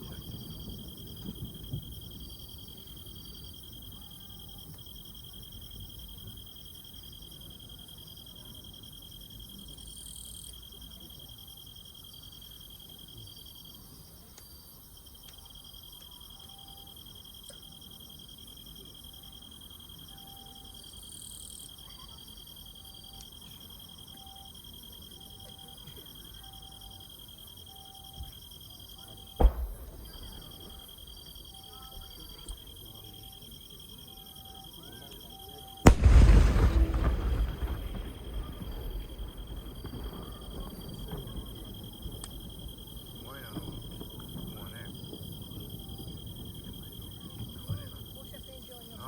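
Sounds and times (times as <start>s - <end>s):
crickets chirring: 0.0s - 49.0s
low insect chirp: 0.0s - 49.0s
dull thump: 29.4s - 31.0s.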